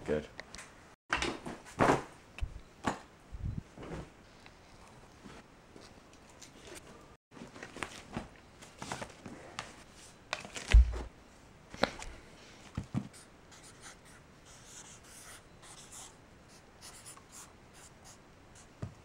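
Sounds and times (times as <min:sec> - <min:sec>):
heavy low thump: 0:10.7 - 0:11.1.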